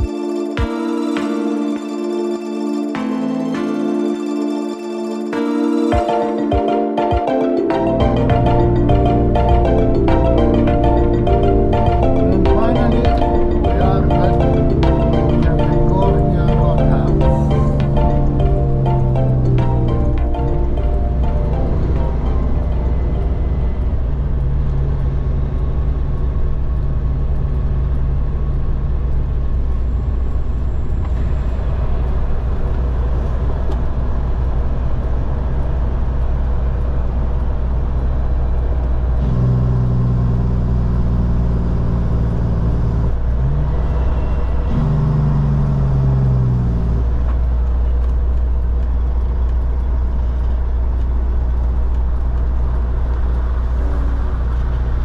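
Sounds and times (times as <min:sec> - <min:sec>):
deep road rumble: 0:07.7 - 0:55.0
truck diesel engine running: 0:07.8 - 0:55.0.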